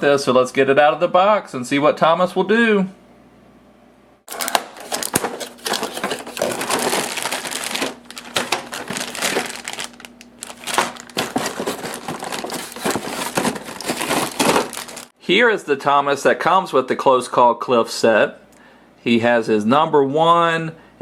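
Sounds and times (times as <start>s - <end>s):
packaging crinkling and rustling: 4.3s - 15.1s.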